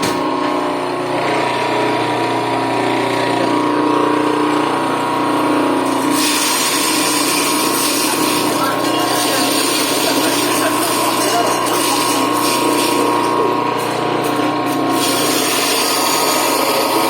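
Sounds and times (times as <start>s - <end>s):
grinder machine humming: 0.0s - 17.0s.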